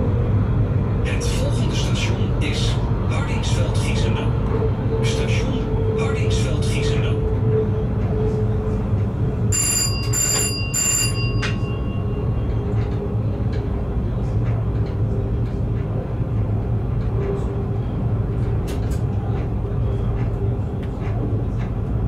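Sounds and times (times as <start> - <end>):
train rumbling on track: 0.0 - 22.0
high ringing tones: 9.5 - 12.6.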